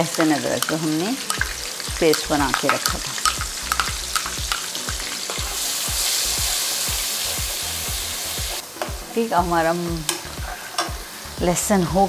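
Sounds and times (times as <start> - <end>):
paste sizzling in hot oil: 0.0 - 12.0
spatula scraping a pan: 10.1 - 11.0.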